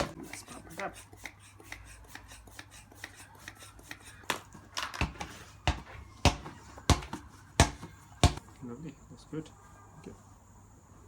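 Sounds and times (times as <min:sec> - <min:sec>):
football dull thumps: 0:04.3 - 0:08.5.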